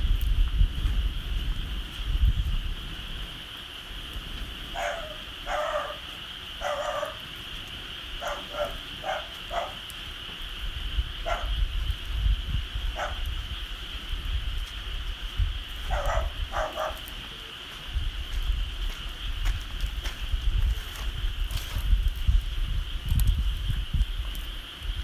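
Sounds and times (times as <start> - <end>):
dog barking: 4.7 - 7.2, 8.2 - 9.8, 11.2 - 11.6, 13.0 - 13.3, 15.8 - 17.1.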